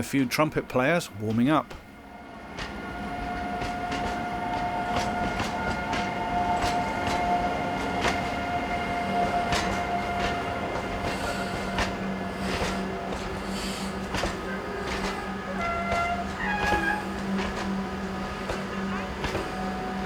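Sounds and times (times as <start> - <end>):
train wheels clicking over rail joints: 1.2 - 20.0
high-pitched train squeal: 13.5 - 17.8.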